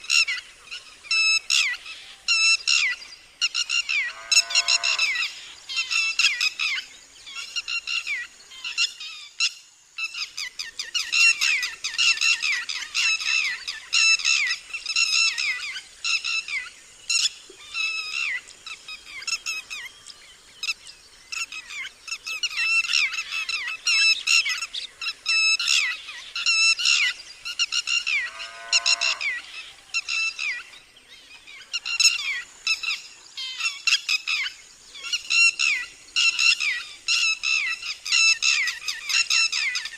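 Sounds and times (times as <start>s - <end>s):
lapwing alarm calls: 3.6s - 6.8s, 25.6s - 30.6s
lower fuller bird call: 3.6s - 6.8s, 25.8s - 30.7s.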